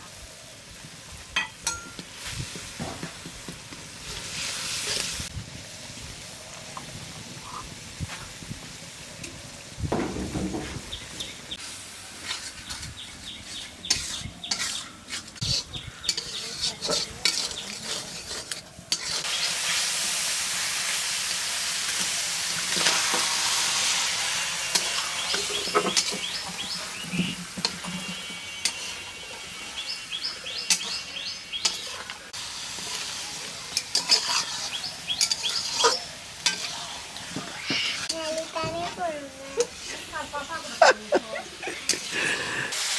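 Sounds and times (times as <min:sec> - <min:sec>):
food frying in hot oil: 0:03.7 - 0:13.0, 0:15.5 - 0:40.8, 0:42.7 - 0:42.9
spoon scraping and knocking pot: 0:13.9 - 0:19.2, 0:24.7 - 0:29.0.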